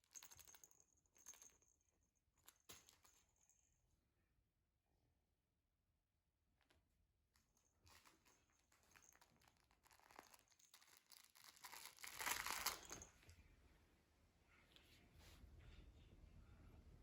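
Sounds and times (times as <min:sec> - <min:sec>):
faint rustling and crinkling: 0:06.6 - 0:13.6.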